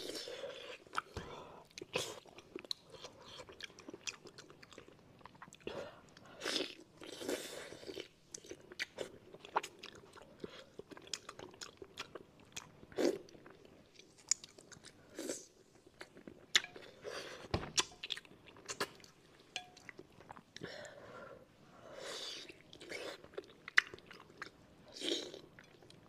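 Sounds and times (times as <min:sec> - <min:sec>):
person chewing fish: 0:00.0 - 0:17.0.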